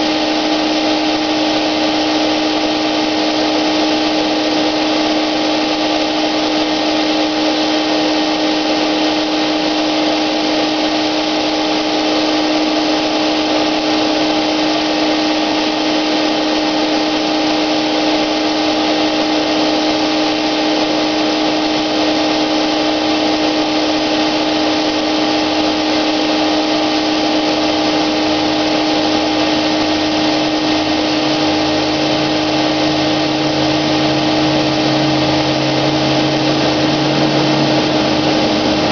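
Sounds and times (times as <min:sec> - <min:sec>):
paint sprayer motor whine: 0:00.0 - 0:38.9
low pulsing hum: 0:30.9 - 0:38.9.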